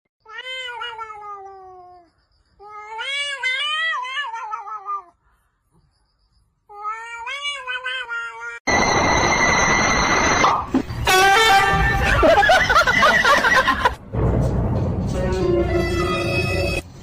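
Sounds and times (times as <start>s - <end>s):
cat yowling: 2.7s - 5.1s.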